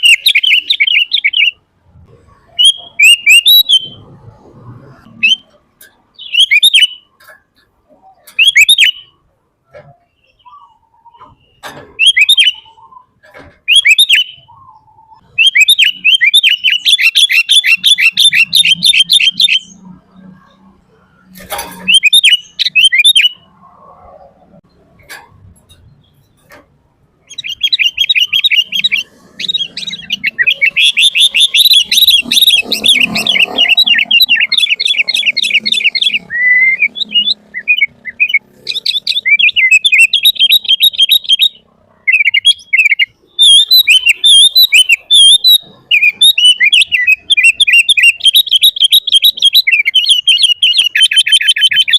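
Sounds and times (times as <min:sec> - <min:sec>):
bulbul chattering calls: 0:00.0 - 0:01.6, 0:02.4 - 0:04.1, 0:08.0 - 0:20.3, 0:27.2 - 0:51.9.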